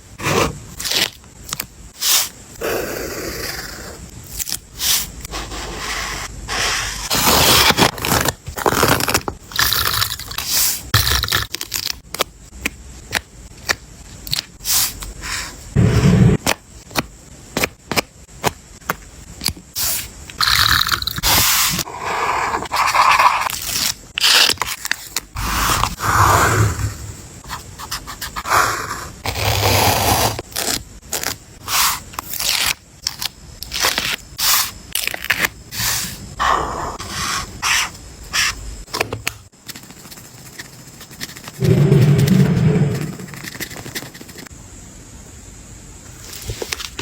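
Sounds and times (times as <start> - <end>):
paper rustling and scraping: 46.2 - 47.0.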